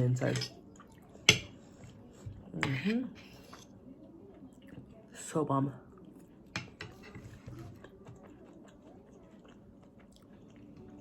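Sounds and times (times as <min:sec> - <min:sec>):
crispy food being chewed: 0:05.9 - 0:11.0.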